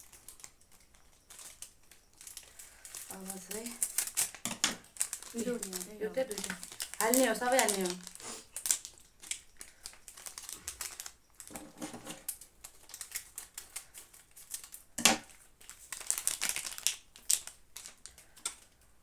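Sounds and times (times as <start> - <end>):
crinkling plastic packets: 0.0 - 19.0.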